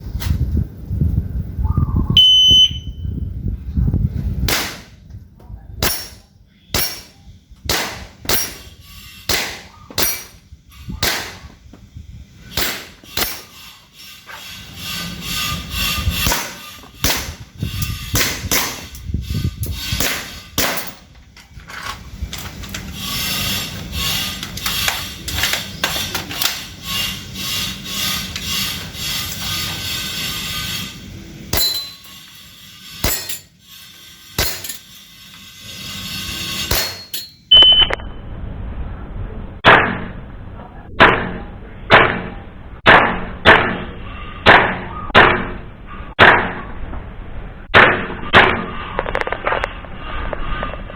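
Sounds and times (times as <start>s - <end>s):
short high beep: 2.1s - 3.0s, 37.5s - 38.2s.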